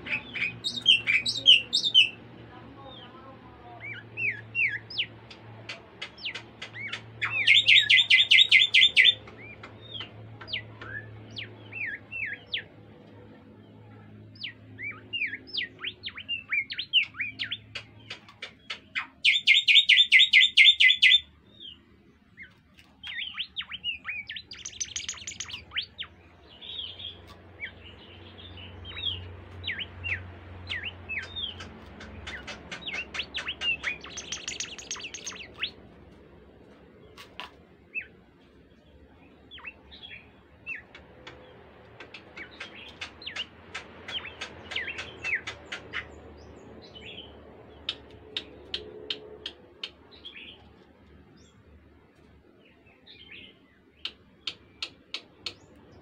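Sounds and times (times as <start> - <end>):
faint low hum: 0.0 - 56.0
bird rapid trill: 6.1 - 9.6, 15.1 - 21.2, 23.2 - 26.1, 28.9 - 35.8.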